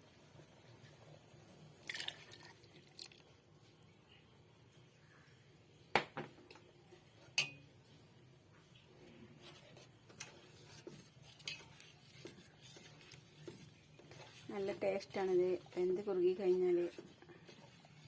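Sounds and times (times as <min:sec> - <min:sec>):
spoon clinking against pot: 0:07.3 - 0:07.7.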